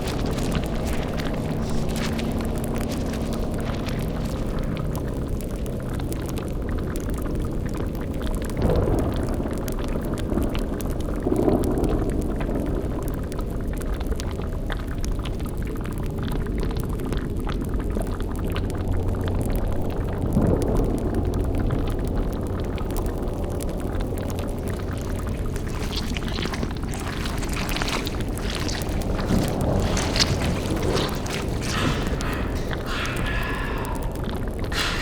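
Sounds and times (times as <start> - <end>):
cauldron bubbling: 0.0 - 11.2, 22.4 - 35.0
fire crackling: 0.0 - 35.0
low steady drone: 23.3 - 35.0.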